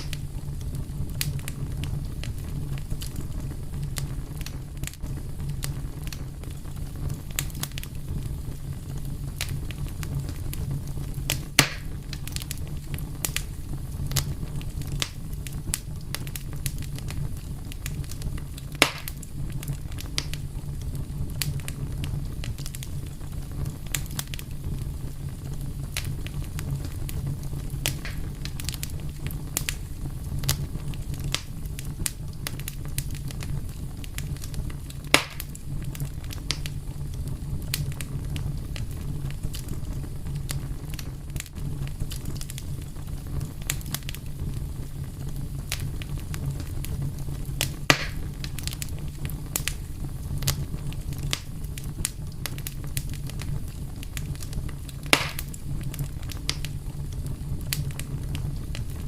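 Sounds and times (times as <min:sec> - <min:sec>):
fire crackles and pops: 0:00.0 - 0:59.0
wood fire rumbling: 0:00.0 - 0:59.0.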